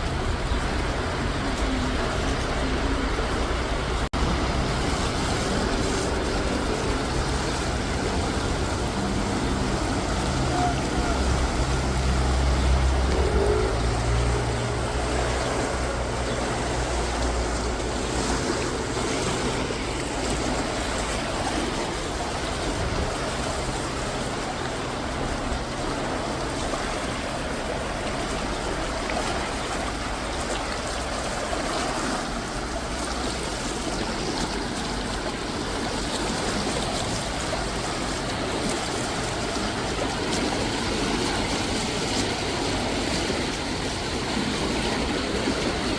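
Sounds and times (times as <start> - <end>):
low motor rumble: 0.0 - 31.4
water rushing under bridge: 0.0 - 45.9.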